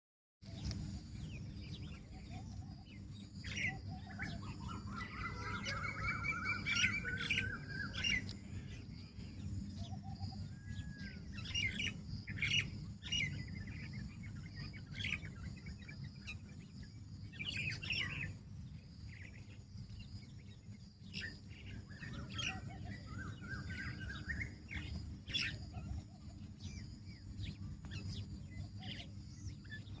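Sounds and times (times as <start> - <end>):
birds chirping and calling: 0.4 - 30.0
low background rumble: 0.5 - 30.0
bird rising trill: 3.4 - 8.3.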